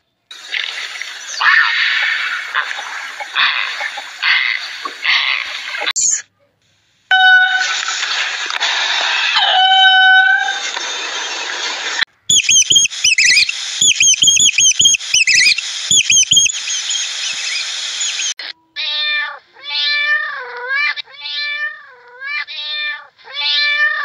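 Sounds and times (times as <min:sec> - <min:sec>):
hiss: 0:00.3 - 0:05.9, 0:06.7 - 0:09.6, 0:12.9 - 0:18.4
high-pitched squeaky chirps: 0:12.3 - 0:18.4
cat meowing: 0:18.8 - 0:24.0.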